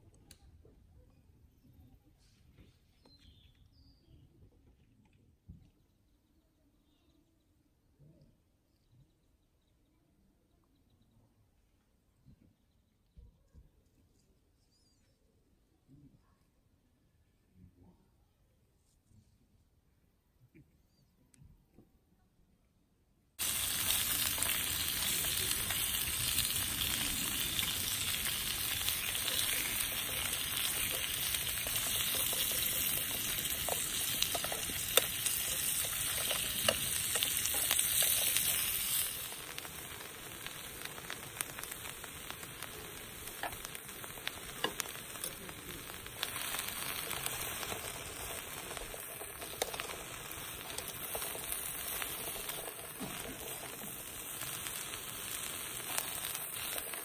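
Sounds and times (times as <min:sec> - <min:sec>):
chicken sizzling in a pot: 0:23.4 - 0:57.0.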